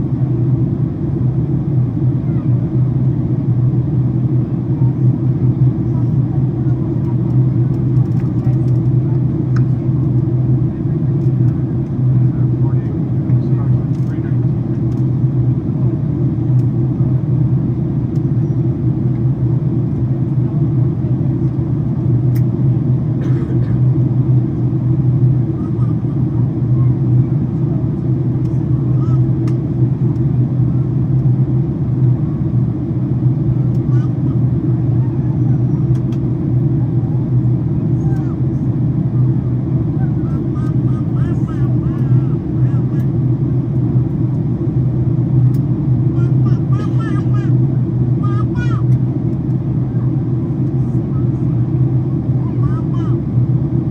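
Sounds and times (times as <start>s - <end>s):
airliner cabin drone: 0.0s - 53.9s
faint voices: 2.0s - 3.4s, 4.3s - 15.2s, 22.4s - 31.2s, 32.2s - 43.6s, 46.1s - 49.0s, 49.6s - 53.4s.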